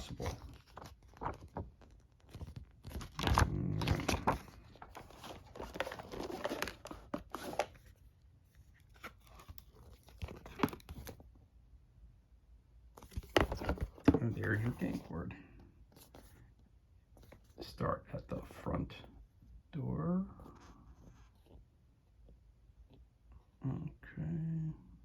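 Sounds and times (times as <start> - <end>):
packaging tearing and crinkling: 2.2 - 7.7.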